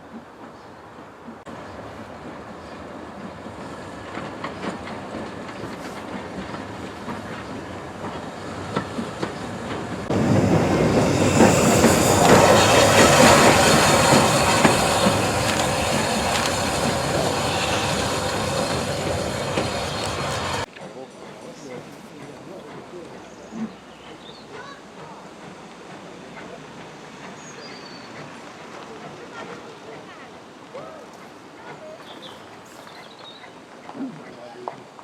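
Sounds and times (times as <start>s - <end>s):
train wheels clicking over rail joints: 0.2s - 30.1s
train wheel squeal: 3.4s - 33.7s.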